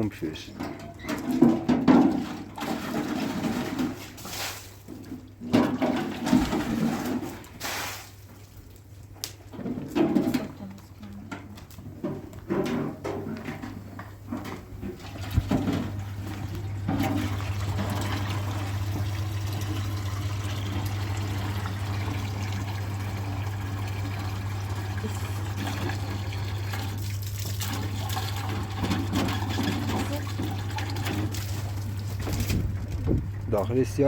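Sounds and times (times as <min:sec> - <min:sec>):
water churning and sloshing: 0:00.5 - 0:34.0
washing machine motor hum: 0:13.4 - 0:34.0.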